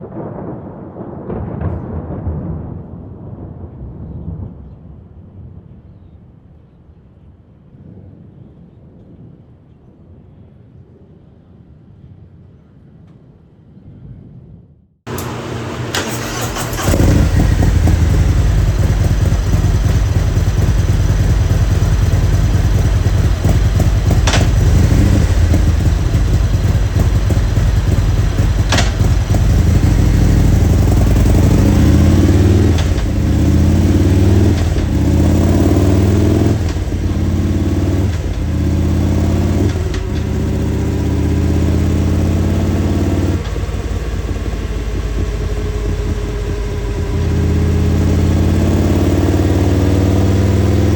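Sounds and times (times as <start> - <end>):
sharp clicks: 15.1 - 21.3, 22.0 - 27.2, 28.0 - 30.0
motorcycle engine revving: 15.1 - 50.9.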